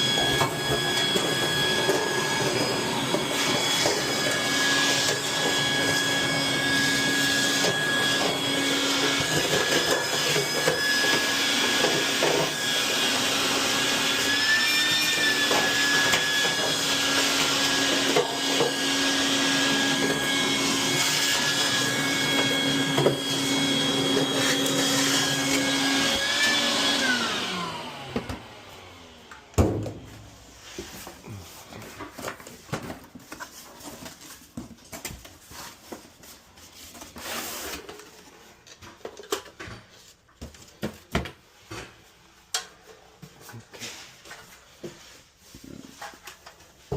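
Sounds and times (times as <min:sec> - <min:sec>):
vacuum cleaner running: 0:00.0 - 0:32.8
rubbing and handling noises: 0:30.0 - 0:46.9.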